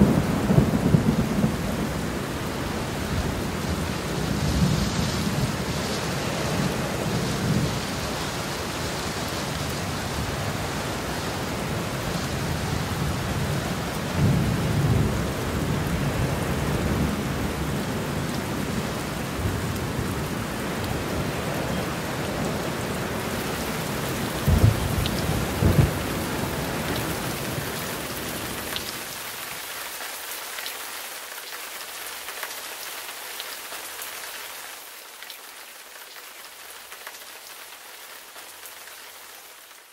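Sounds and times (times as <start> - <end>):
steady rain: 0.0 - 39.9
thunder cracks: 24.4 - 26.8
thunder rolling: 24.4 - 27.5.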